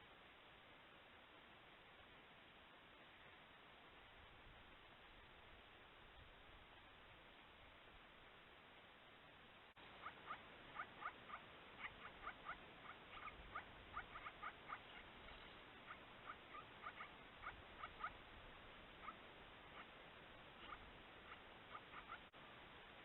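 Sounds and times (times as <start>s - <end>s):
faint hiss: 0.0s - 23.0s
small birds squeaky chirps: 9.8s - 22.4s.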